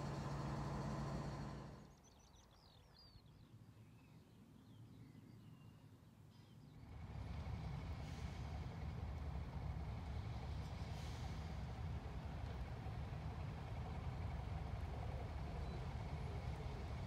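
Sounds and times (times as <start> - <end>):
low engine hum: 0.0 - 2.0, 6.8 - 17.0.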